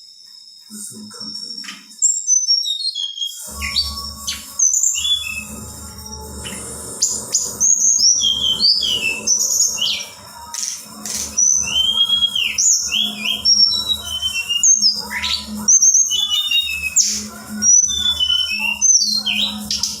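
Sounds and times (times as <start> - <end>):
songbird whistling and chirping: 1.2 - 20.0
low hum: 3.4 - 16.2.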